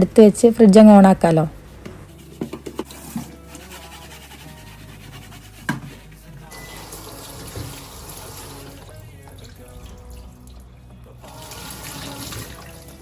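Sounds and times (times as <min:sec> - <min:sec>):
tap water running into sink: 0:06.6 - 0:13.0.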